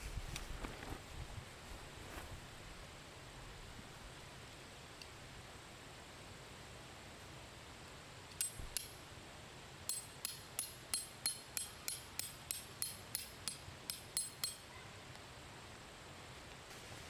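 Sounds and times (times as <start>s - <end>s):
hammer striking tent stake: 9.9s - 14.6s.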